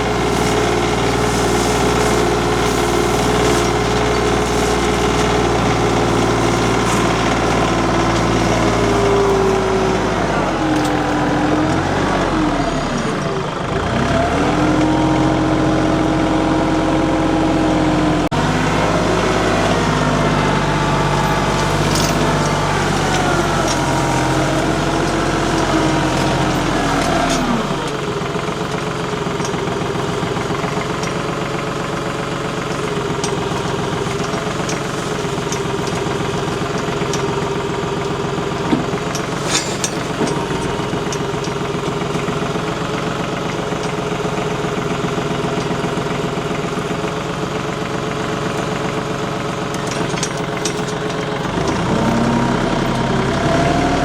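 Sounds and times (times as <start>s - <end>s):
tractor engine running: 0.0s - 54.0s
sharp clanks: 38.0s - 42.0s.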